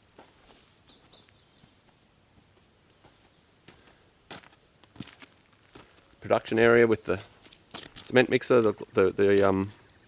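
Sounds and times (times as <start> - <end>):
faint bird chirps: 0.8 - 1.9, 9.7 - 10.0.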